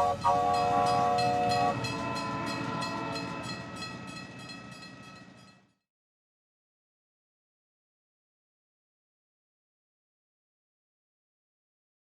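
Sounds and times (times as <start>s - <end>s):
train horn chord: 0.0s - 5.2s
train wheels clickety-clack: 0.0s - 5.7s.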